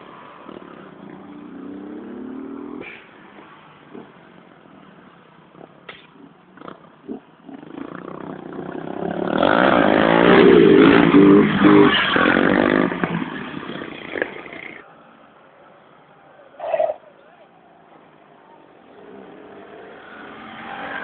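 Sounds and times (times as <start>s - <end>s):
motorcycle engine revving past: 6.6s - 14.8s.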